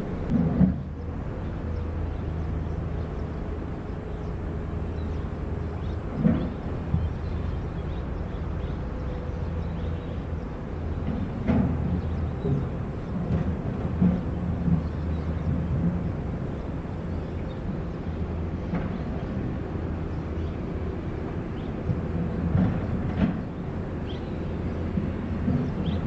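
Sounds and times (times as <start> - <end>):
diesel engine of heavy machinery: 0.0 - 26.0.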